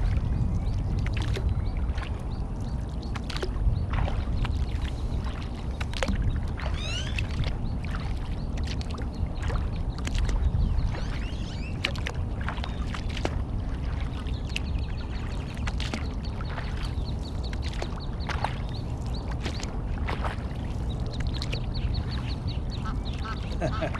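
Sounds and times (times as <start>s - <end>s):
sharp splashes and knocks: 0.0s - 23.9s
water splashing around kayak: 0.0s - 23.9s
duck calls: 22.8s - 23.9s.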